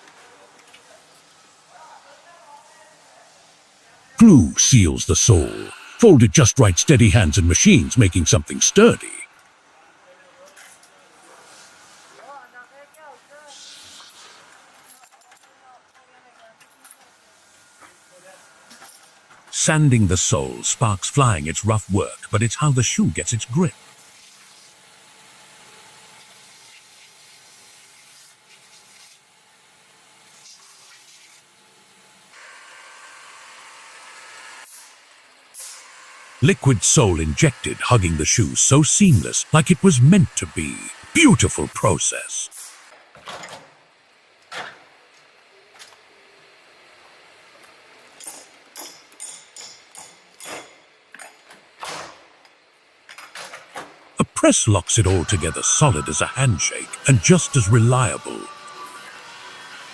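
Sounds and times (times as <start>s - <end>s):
faint steady hiss: 4.2s - 9.2s.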